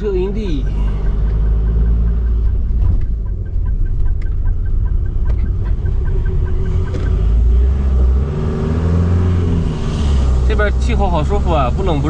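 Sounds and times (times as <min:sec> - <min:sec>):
faint even ticking: 0:00.0 - 0:08.2
vehicle engine and road rumble: 0:00.0 - 0:12.0.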